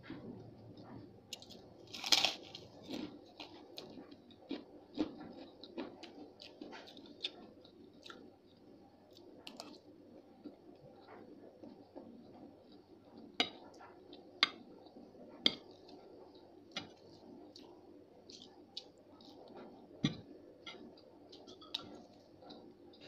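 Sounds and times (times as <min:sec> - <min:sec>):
person crunching food: 0:01.4 - 0:07.4.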